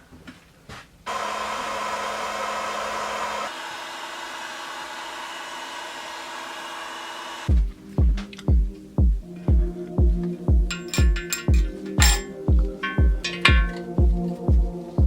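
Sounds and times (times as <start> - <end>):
music with thumping beat: 7.5 - 15.0.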